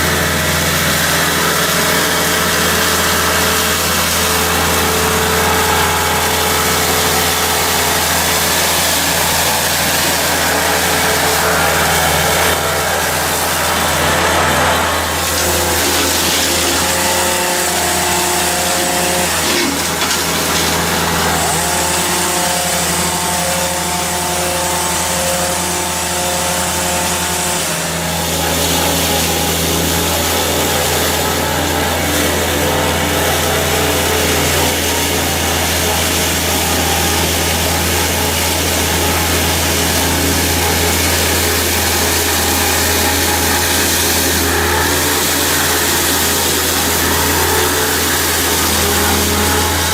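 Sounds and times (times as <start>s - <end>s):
machinery engine hum: 0.0s - 25.0s.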